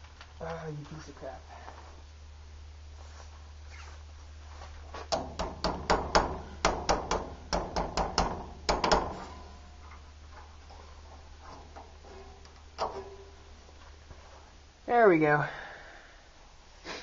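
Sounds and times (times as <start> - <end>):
sharp metal knocks: 5.1 - 9.8, 11.5 - 13.4.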